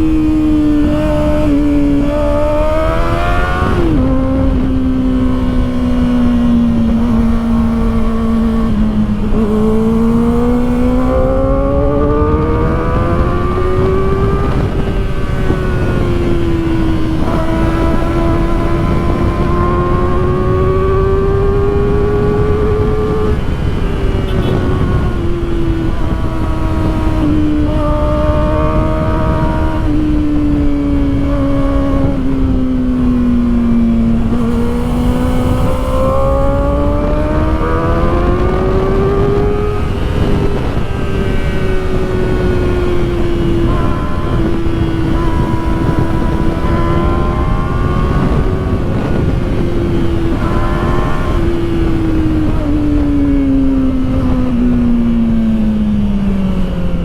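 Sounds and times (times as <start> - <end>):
motorcycle engine revving: 0.0 - 57.0
wind and road noise: 0.0 - 57.0.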